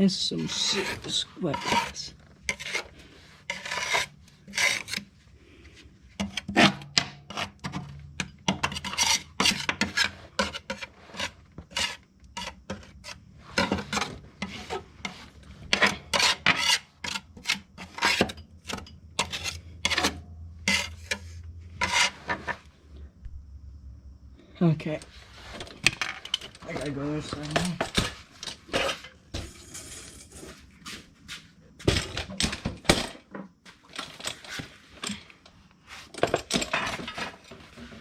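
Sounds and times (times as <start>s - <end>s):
scraper rasping on mower deck: 0.3s - 5.1s, 8.6s - 22.7s.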